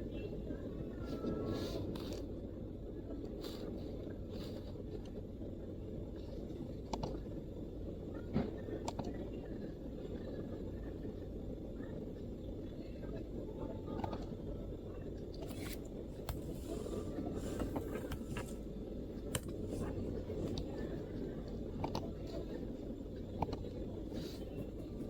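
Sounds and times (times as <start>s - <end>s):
low background rumble: 0.0s - 25.0s.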